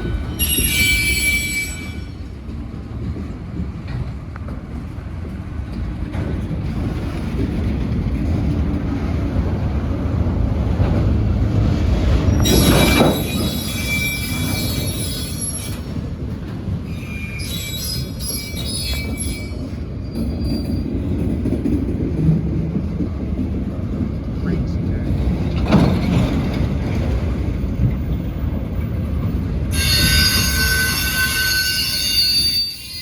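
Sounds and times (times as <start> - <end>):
wheels squealing: 0.0 - 2.3, 12.1 - 16.1, 16.8 - 21.1, 29.7 - 33.0
train wheels rumbling on rail: 0.0 - 33.0.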